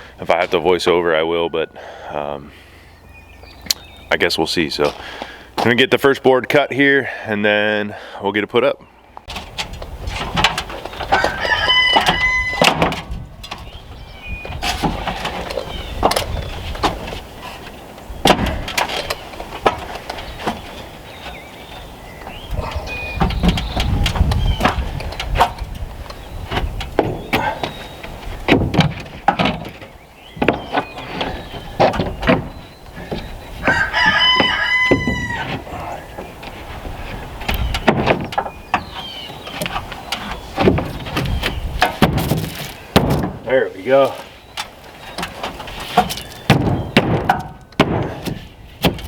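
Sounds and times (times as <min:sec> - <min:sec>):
wind rumble on microphone: 0:09.3 - 0:17.3, 0:21.8 - 0:29.3, 0:40.7 - 0:43.5
board knocking and scraping: 0:26.5 - 0:43.5, 0:45.1 - 0:49.0.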